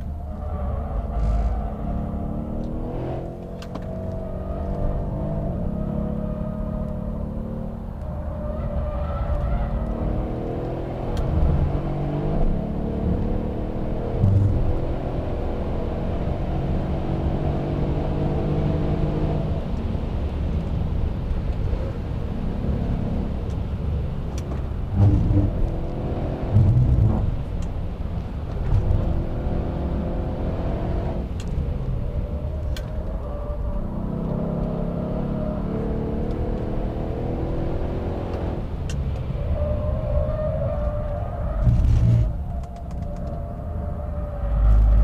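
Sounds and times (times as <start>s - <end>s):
car engine revving: 1.2s - 19.6s, 24.6s - 31.6s, 33.0s - 38.9s, 40.8s - 42.5s.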